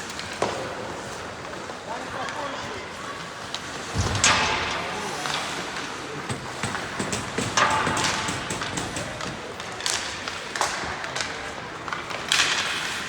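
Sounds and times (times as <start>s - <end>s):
hockey sticks and puck thuds: 0.0s - 2.4s, 3.5s - 13.0s
skates scraping on ice: 9.5s - 13.0s.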